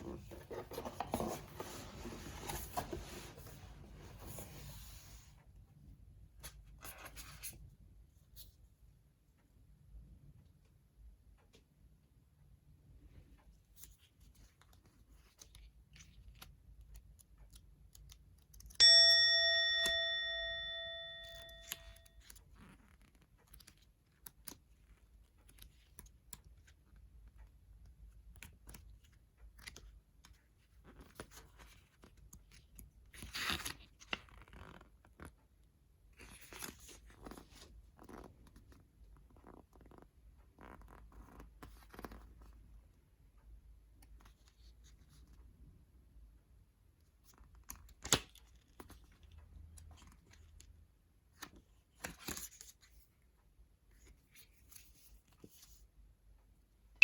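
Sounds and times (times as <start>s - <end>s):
bright ringing ding: 18.8s - 22.1s.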